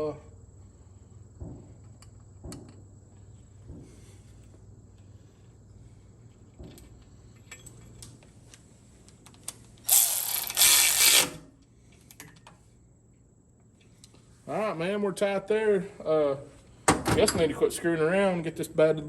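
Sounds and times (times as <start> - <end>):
tools and parts tapping: 1.4 - 2.9, 12.0 - 12.6
ratchet wrench clicking: 9.8 - 11.4.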